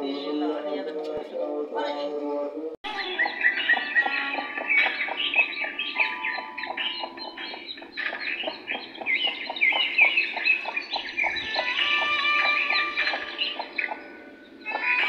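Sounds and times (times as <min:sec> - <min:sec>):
birds chirping and calling: 0:00.0 - 0:15.0.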